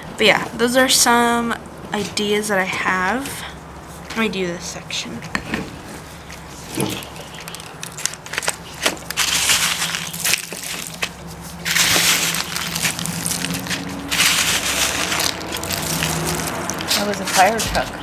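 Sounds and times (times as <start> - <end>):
birdseed rustling and crackling: 6.1 - 18.0.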